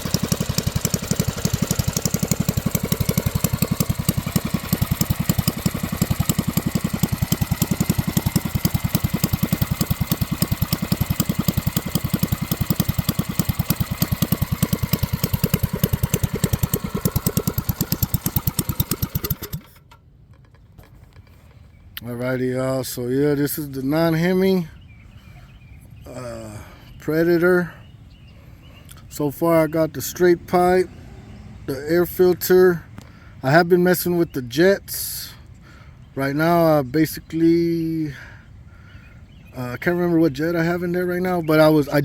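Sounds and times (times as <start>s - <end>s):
mini bike engine idling: 0.0s - 21.6s.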